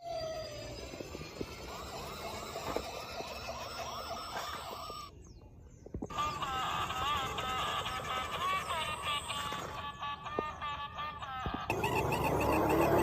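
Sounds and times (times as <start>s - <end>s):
toy police siren warbling: 0.0s - 5.1s, 6.1s - 10.5s, 11.4s - 13.0s.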